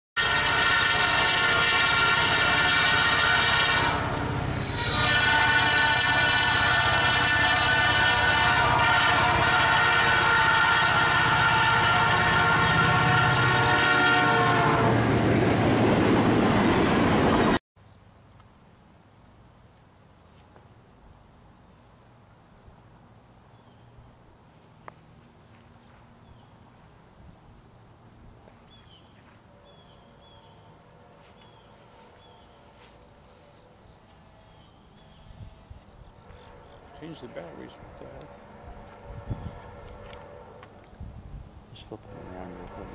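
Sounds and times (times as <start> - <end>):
freight train rushing past: 0.2 - 17.6, 34.0 - 42.9
insects chirring: 1.1 - 14.5, 17.8 - 42.9.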